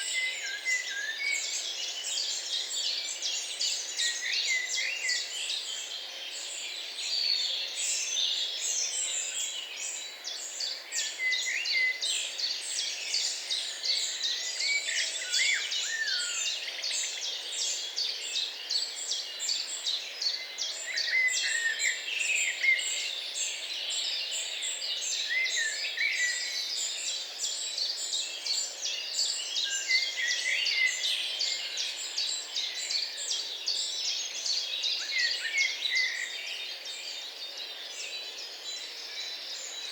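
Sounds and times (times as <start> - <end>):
songbirds chorus: 0.0 - 39.9.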